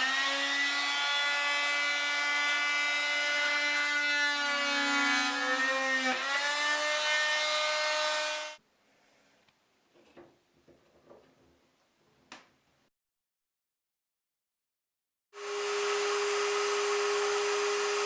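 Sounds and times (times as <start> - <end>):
oscillating multi-tool cutting wood: 0.0 - 8.6, 15.4 - 18.0.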